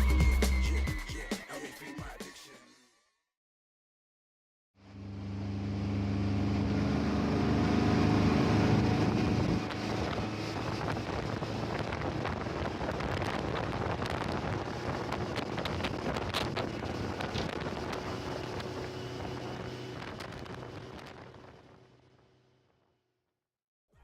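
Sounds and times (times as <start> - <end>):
motorboat engine hum: 4.8 - 22.6
wind buffeting microphone: 8.6 - 21.5.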